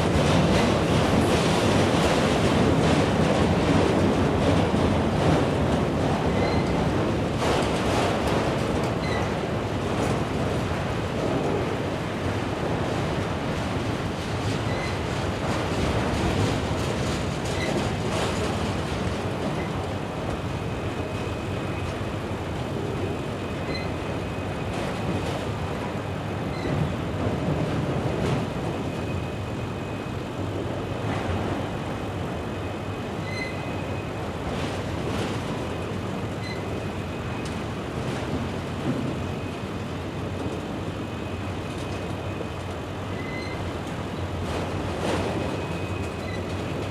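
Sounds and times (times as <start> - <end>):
freight train rumbling past: 0.0 - 46.9
faint high squeal: 33.2 - 33.8, 43.1 - 43.6.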